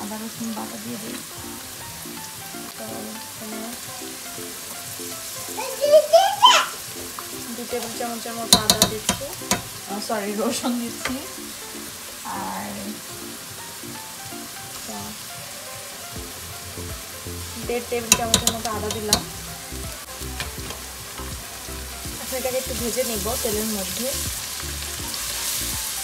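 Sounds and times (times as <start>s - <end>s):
onions sizzling in oil: 0.0s - 26.0s
utensils clicking against pan: 7.8s - 9.8s, 18.0s - 19.4s, 20.4s - 21.3s
spatula scraping wok: 20.1s - 26.0s.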